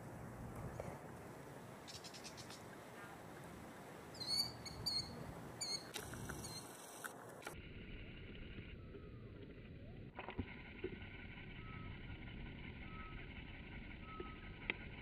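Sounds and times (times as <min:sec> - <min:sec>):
faint outdoor background: 0:00.0 - 0:15.0
bird calls: 0:01.8 - 0:03.2, 0:04.1 - 0:07.0.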